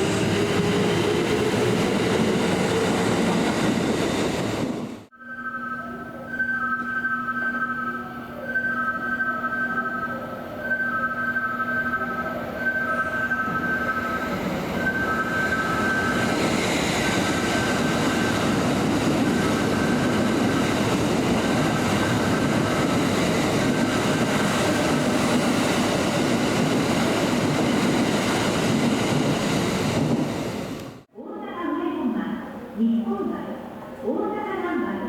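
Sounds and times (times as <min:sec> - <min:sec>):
train wheels rumbling on rails: 0:00.0 - 0:05.1, 0:12.6 - 0:31.1
thin high tones: 0:05.1 - 0:16.2.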